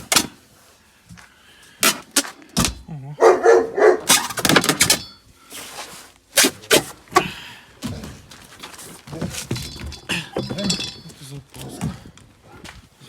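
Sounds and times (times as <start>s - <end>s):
objects knocking in car boot: 6.4s - 11.1s.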